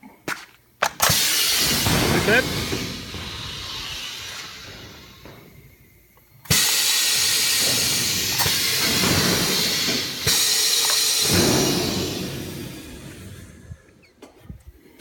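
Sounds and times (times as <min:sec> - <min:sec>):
compressed air hissing: 0:01.0 - 0:13.9.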